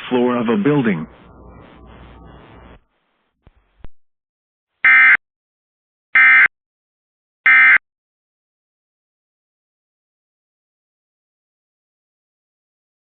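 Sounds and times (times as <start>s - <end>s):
digital warbles: 0.5s - 2.8s.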